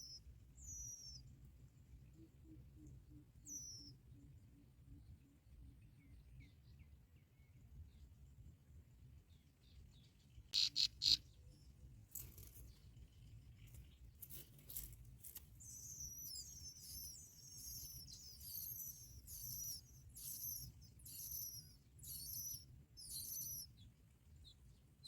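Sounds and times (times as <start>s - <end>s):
bird sharp calls: 10.5s - 11.2s
high-pitched squeaky chirps: 10.6s - 11.2s.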